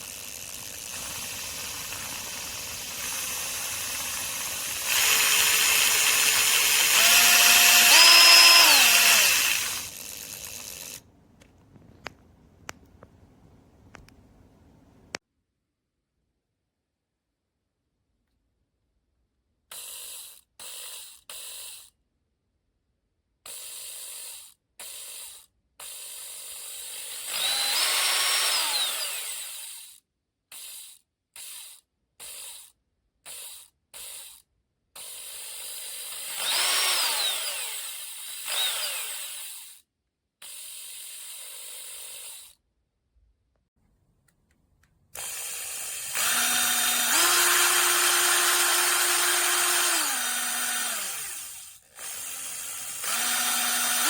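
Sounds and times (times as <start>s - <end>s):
drill driver running: 0.0s - 11.0s, 26.0s - 30.0s, 35.0s - 39.8s, 45.2s - 54.0s.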